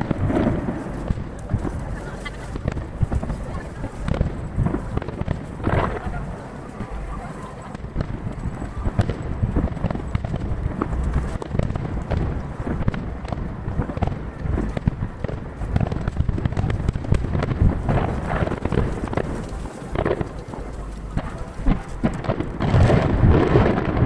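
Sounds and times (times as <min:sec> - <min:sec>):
firework shells bursting: 0:00.0 - 0:24.0
rumble of echoes: 0:00.0 - 0:24.0.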